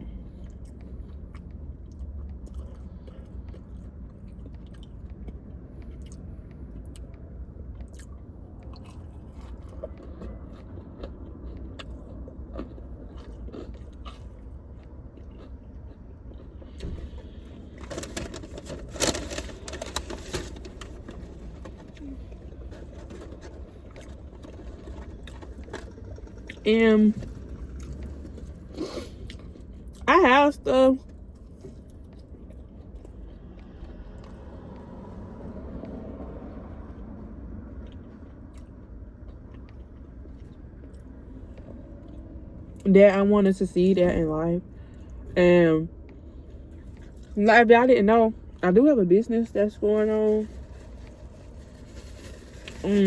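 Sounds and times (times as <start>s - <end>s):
low steady hum: 0.0s - 53.0s
food crunches and clicks: 0.5s - 26.7s
person chewing: 7.8s - 17.8s.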